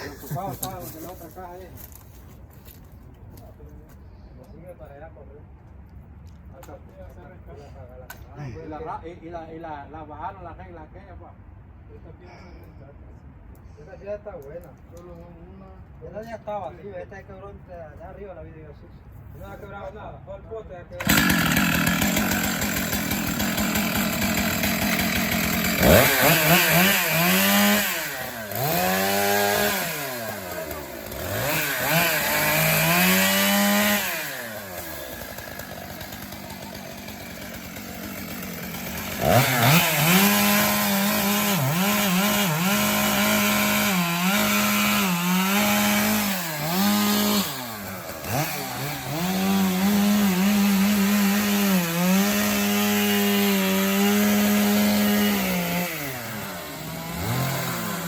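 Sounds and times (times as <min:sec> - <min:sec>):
chainsaw revving and cutting wood: 0:21.0 - 0:58.0.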